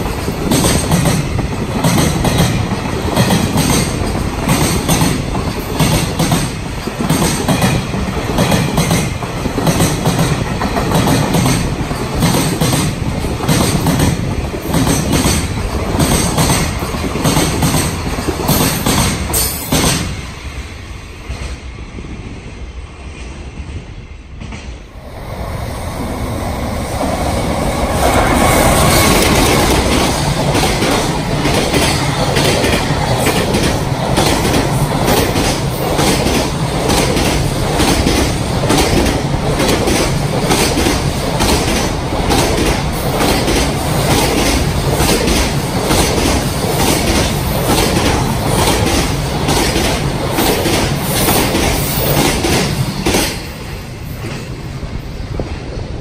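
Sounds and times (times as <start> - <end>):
freight train passing: 0.0 - 56.0
wheels clacking over rail joints: 27.0 - 53.5.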